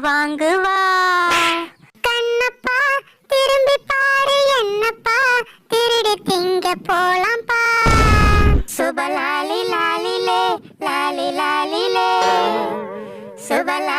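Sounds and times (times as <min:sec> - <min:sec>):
high-pitched singing voice: 0:00.0 - 0:13.9
rough noisy burst: 0:07.9 - 0:08.7.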